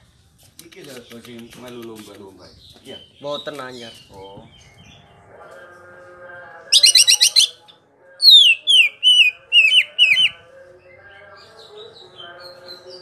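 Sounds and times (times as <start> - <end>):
bird singing ringing notes: 6.7 - 13.0.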